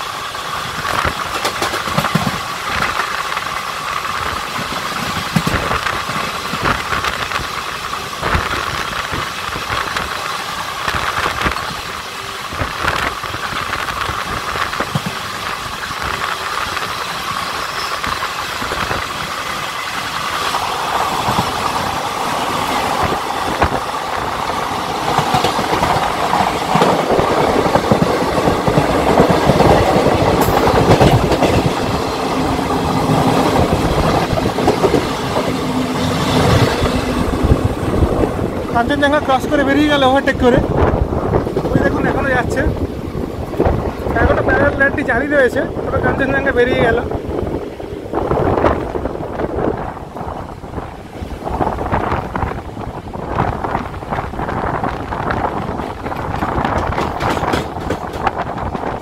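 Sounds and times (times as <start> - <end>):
train rumble and wind: 0.0 - 59.0
wheels knocking over rail joints: 55.8 - 59.0.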